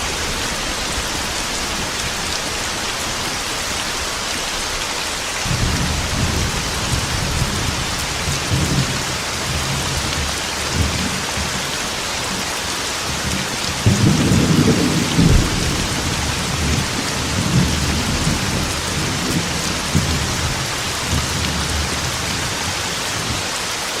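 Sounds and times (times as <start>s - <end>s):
heavy rain on metal roof: 0.0s - 24.0s
thunder rumbling: 5.4s - 12.5s, 13.1s - 23.4s.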